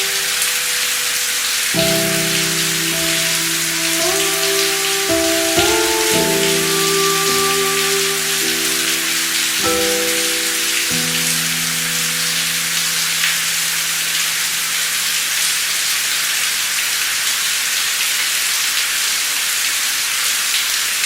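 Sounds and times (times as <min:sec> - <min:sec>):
low note of soft music: 0:00.0 - 0:12.8
rain drops ticking: 0:00.0 - 0:21.0
steady rain: 0:00.0 - 0:21.0.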